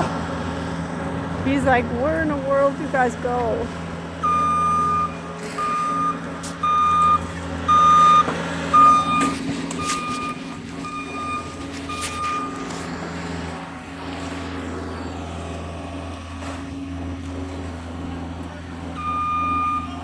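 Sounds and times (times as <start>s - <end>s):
truck engine running: 0.0s - 20.0s
reversing alarm beeping: 1.5s - 13.5s, 18.8s - 20.0s.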